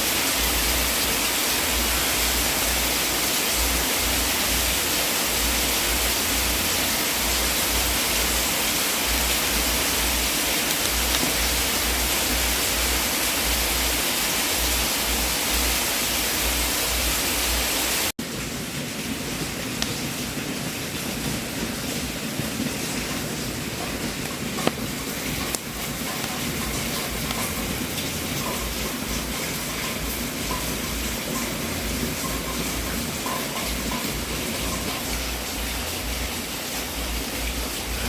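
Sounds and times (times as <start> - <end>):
fire crackles: 1.7 - 13.7, 18.2 - 36.1.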